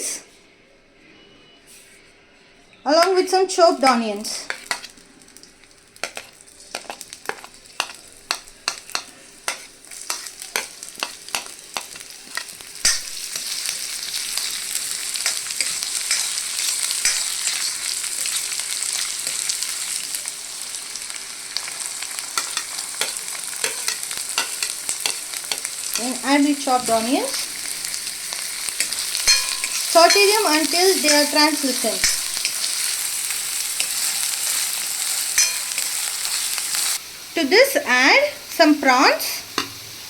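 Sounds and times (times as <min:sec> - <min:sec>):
food sizzling in oil: 0:03.1 - 0:40.0
spatula scraping a wok: 0:04.5 - 0:05.0, 0:06.0 - 0:19.9, 0:22.1 - 0:26.2, 0:26.8 - 0:37.0.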